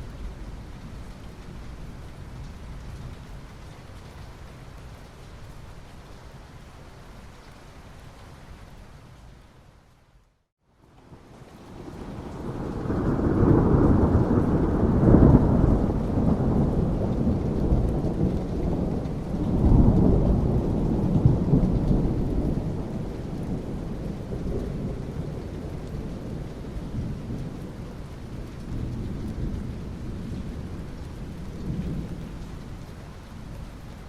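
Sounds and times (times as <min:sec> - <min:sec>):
steady rain: 0:00.0 - 0:34.0
rolling thunder: 0:11.7 - 0:33.0.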